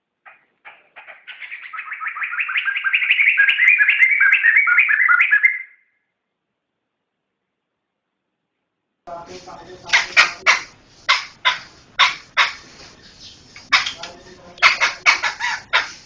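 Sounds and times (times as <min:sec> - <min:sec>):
bird whistling repeated notes: 0:01.0 - 0:06.0.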